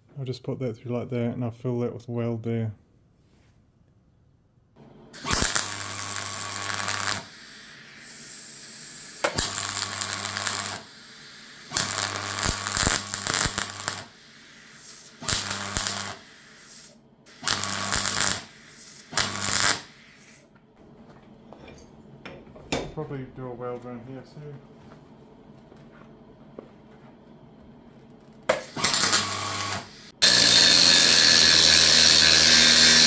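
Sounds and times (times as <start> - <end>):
arc welding hiss: 5.2 - 20.5, 28.5 - 33.0
steady low hum: 19.8 - 28.6.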